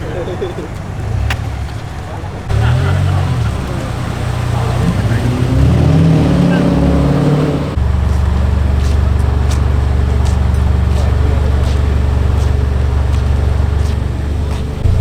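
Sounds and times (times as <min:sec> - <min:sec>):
car engine idling: 0:00.0 - 0:15.0
faint clicks: 0:00.5 - 0:05.3.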